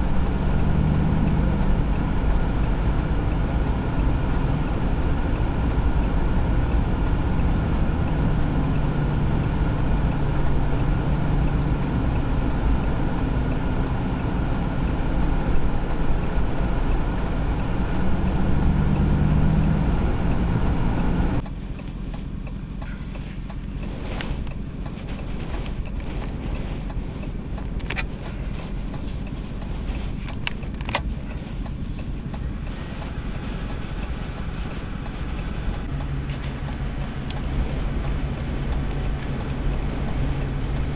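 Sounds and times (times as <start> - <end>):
light ticking: 0.0 - 40.9
low engine hum: 0.0 - 40.9
sharp clicks: 18.3 - 40.9
blizzard wind blowing: 23.5 - 40.9.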